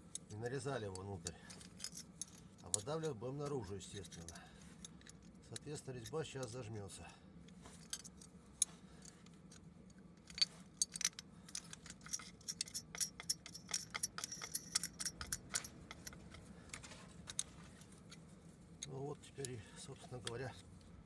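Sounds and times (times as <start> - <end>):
hand tools clicking on metal: 2.6 - 4.4, 10.3 - 17.5.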